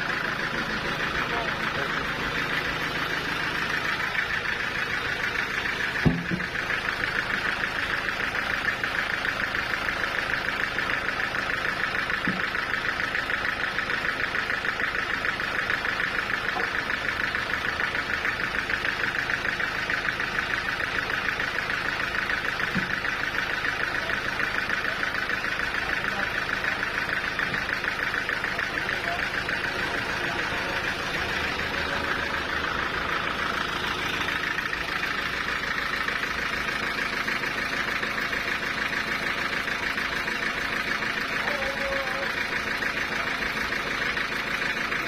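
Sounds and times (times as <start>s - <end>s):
sawmill machinery pulsing hum: 0.0s - 45.0s
sharp thump: 6.0s - 6.5s.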